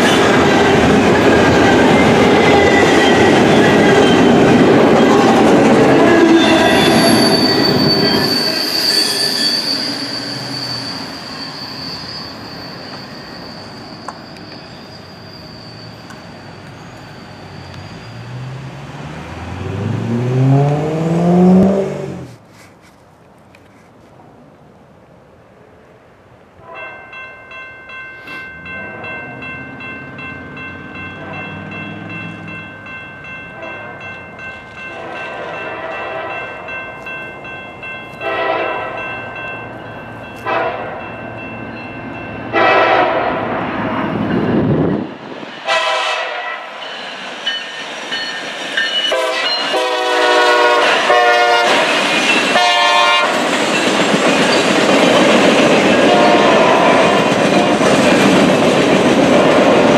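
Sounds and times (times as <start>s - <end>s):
crossing bell ringing: 0.0s - 20.0s, 26.7s - 43.2s, 44.0s - 44.7s, 46.3s - 54.9s
diesel locomotive engines: 0.0s - 59.9s
locomotive horn blasts: 38.2s - 39.0s, 40.4s - 41.0s, 42.5s - 43.4s, 45.7s - 46.7s, 49.1s - 51.8s, 52.6s - 53.4s, 56.0s - 57.8s
trailers rattling over rails: 50.8s - 52.6s, 53.3s - 59.9s.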